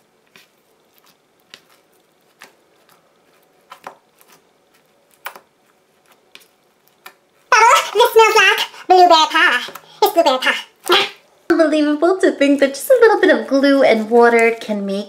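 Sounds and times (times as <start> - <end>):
slime crackling and clicking: 0.4 - 7.3.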